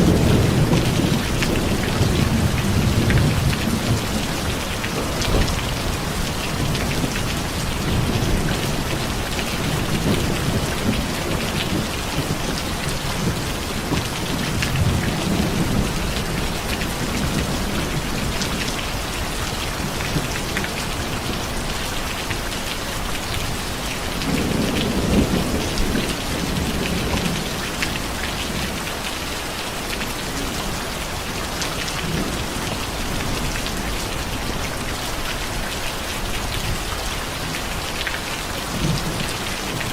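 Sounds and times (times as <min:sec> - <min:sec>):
thunder rolling: 0:00.0 - 0:18.5
heavy rain hissing: 0:00.0 - 0:39.9.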